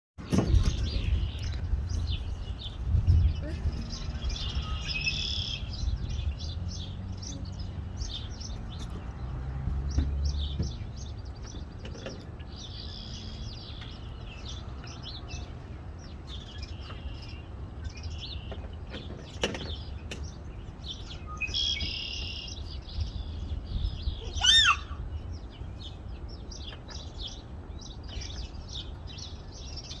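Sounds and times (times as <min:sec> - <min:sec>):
small birds chirping: 0:00.2 - 0:30.0
rising bird call: 0:24.1 - 0:25.1.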